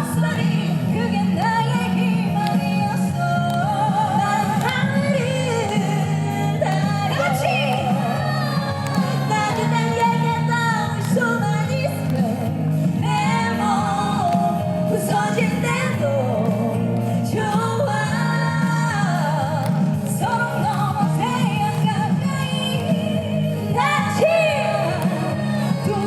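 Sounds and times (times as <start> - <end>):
live pop-rock band: 0.0 - 26.0
person singing lead vocal: 0.0 - 26.0
steady bass: 0.0 - 26.0.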